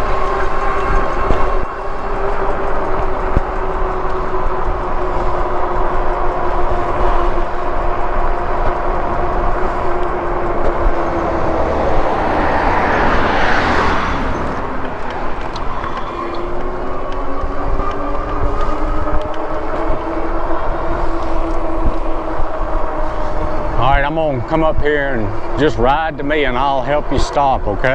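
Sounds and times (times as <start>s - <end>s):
wind rushing over microphone: 0.0s - 26.0s
electric motor whine: 0.0s - 27.2s.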